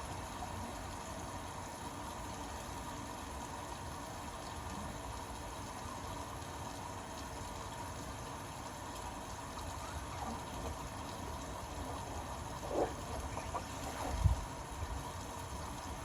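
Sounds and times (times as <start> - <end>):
faint washing machine hum: 0.0 - 16.0
washing machine water rushing: 6.5 - 16.0.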